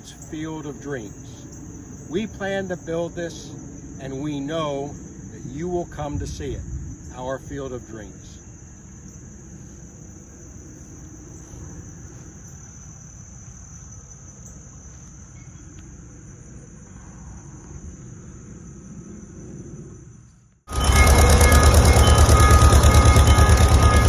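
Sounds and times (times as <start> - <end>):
low outdoor rumble: 0.0 - 13.4
insects trilling: 0.0 - 24.0.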